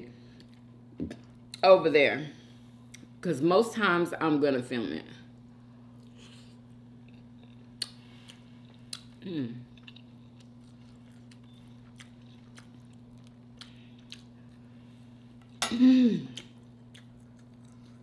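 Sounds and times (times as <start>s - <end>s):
chewing and mouth smacks: 6.0s - 14.7s, 16.3s - 18.0s
person humming mm: 9.2s - 9.7s.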